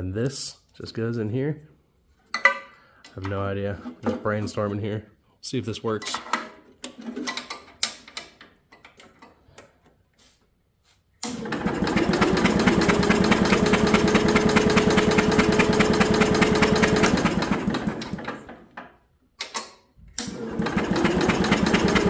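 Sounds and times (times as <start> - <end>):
electric starter cranking engine: 11.2 - 18.7, 20.2 - 22.0.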